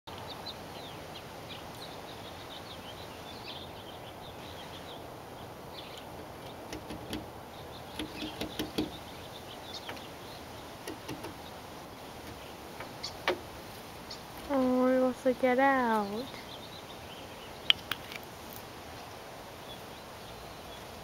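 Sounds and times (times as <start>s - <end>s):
birds chirping: 0.1s - 21.0s
steady outdoor hiss: 0.1s - 21.0s
sharp light clicks and knocks: 6.4s - 7.3s, 7.9s - 9.0s, 10.8s - 11.4s, 12.2s - 13.5s.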